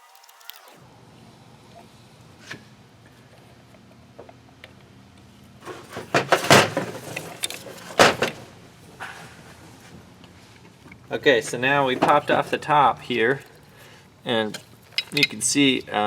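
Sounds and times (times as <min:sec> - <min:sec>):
metal parts clicking and knocking: 0:05.6 - 0:08.4, 0:14.4 - 0:15.6.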